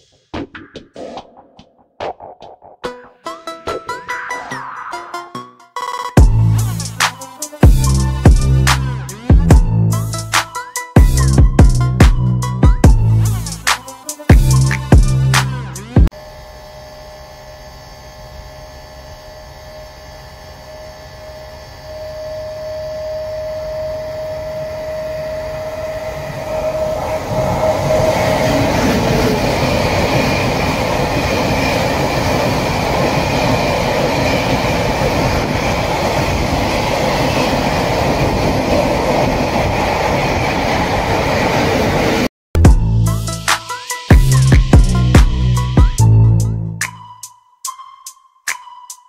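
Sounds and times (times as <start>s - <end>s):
steady high tone: 3.0s - 8.6s, 20.2s - 36.0s
train wheels rumbling on rails: 23.2s - 42.3s.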